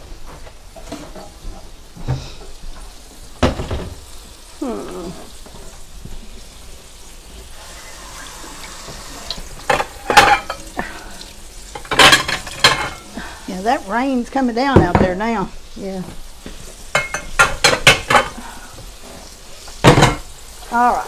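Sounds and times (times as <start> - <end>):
rice sizzling in a skillet: 0.0 - 21.0
dishes clattering in a cabinet: 0.7 - 2.4, 3.4 - 4.1, 8.8 - 11.0, 11.7 - 13.2, 16.9 - 18.5, 19.8 - 20.3.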